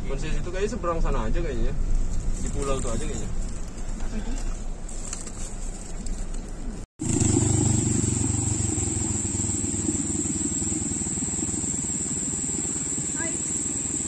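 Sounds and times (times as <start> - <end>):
vehicle engine and road noise: 0.0 - 14.0
high-pitched whine: 7.1 - 14.0.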